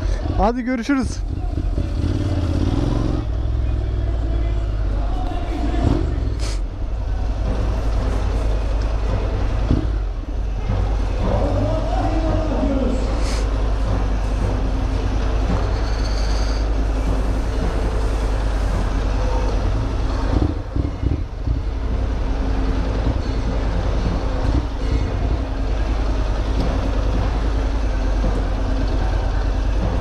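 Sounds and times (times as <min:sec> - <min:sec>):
motorcycle engine running: 0:00.0 - 0:05.1.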